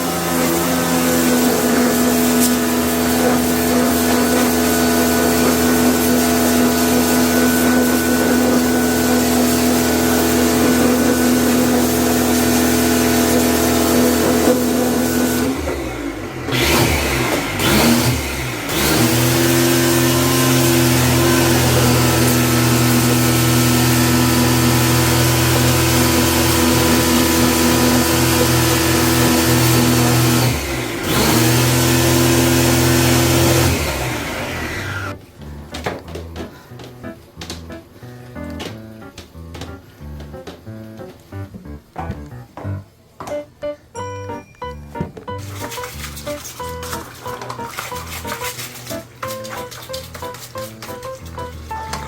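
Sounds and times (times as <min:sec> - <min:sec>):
motor-driven machine humming: 0:00.0 - 0:35.2.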